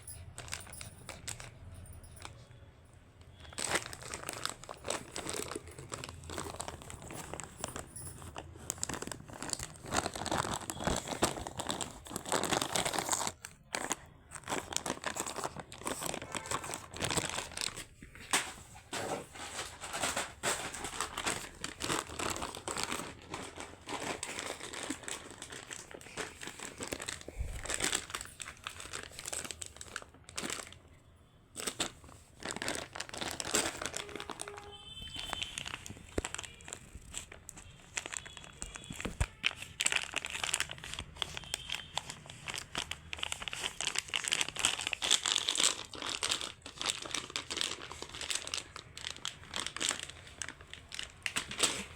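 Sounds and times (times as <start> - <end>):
crinkly material crumpled and torn: 0.0 - 2.4, 3.2 - 51.9.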